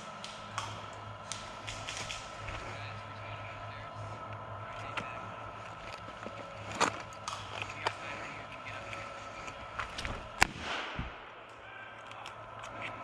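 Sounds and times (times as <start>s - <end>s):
airsoft gunfire cracks: 10.4s - 11.4s.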